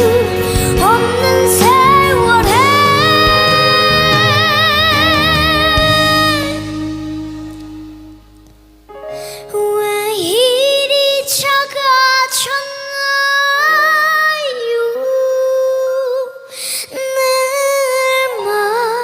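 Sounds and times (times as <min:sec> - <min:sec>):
woman singing slow melody: 0:00.0 - 0:07.9.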